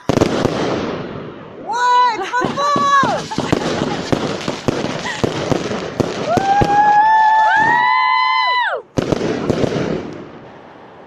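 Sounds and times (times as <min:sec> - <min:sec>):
firework cracks: 0:00.0 - 0:01.6, 0:02.2 - 0:10.8
whistling fireworks: 0:02.3 - 0:10.6
firework bang: 0:02.4 - 0:07.9, 0:09.0 - 0:10.6.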